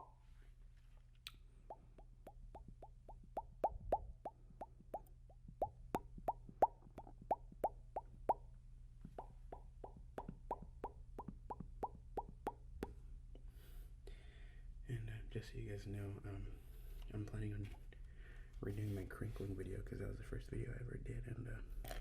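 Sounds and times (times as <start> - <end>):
low steady hum: 0.0 - 22.0
wet tongue pops: 1.2 - 8.4, 9.1 - 13.0.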